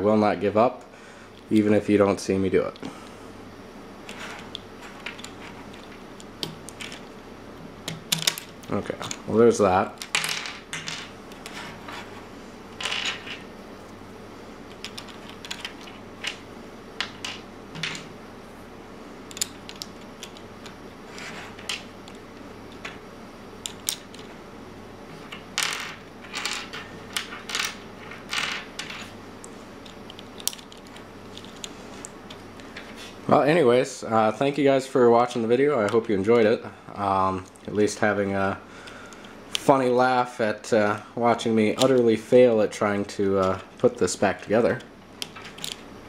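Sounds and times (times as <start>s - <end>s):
plastic puzzle pieces clicking: 19.3s - 20.4s.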